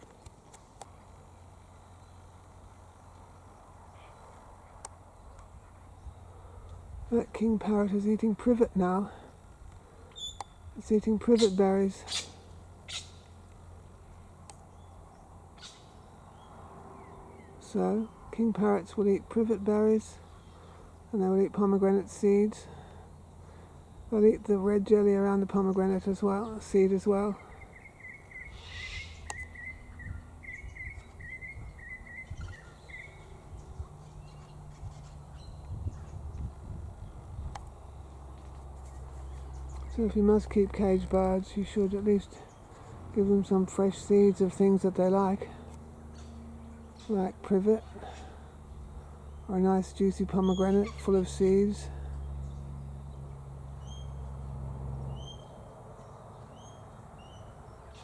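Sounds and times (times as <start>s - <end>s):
low outdoor rumble: 0.0s - 58.0s
bird chirping: 10.0s - 18.2s, 25.2s - 38.2s, 46.0s - 58.0s.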